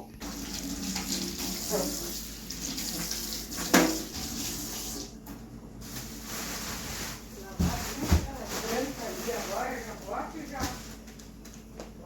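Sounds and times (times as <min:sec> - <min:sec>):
tap water running into sink: 0:00.2 - 0:05.1.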